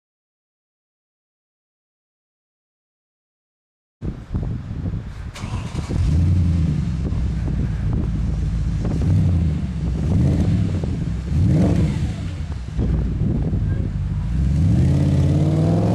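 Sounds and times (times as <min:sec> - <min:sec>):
car engine idling and revving: 0:05.1 - 0:15.9.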